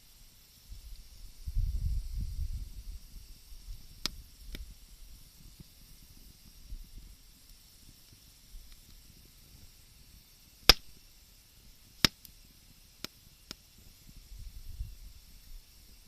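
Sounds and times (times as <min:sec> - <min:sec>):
faint steady hiss: 0:00.0 - 0:16.0
wood fire cracks: 0:03.5 - 0:14.4.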